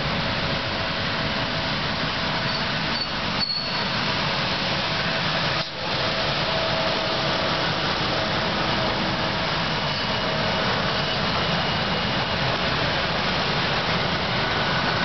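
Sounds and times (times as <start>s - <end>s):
train wheels rumbling and hissing: 0.0s - 15.0s
faint high squeal: 2.4s - 3.9s.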